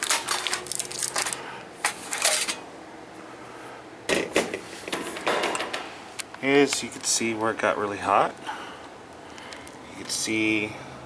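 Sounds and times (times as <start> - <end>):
clicks and rustles of hands: 0.0 - 2.6.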